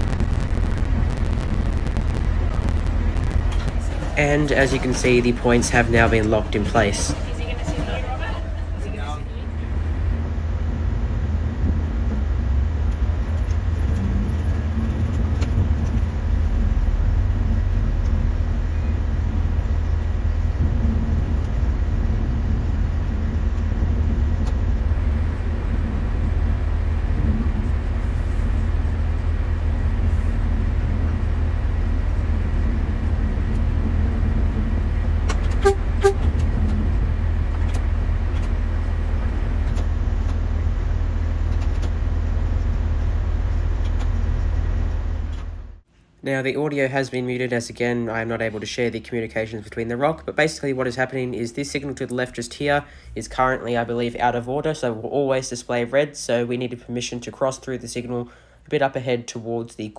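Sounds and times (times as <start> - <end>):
train rumbling over rails: 0.0 - 45.9
train horn toots: 35.5 - 36.4.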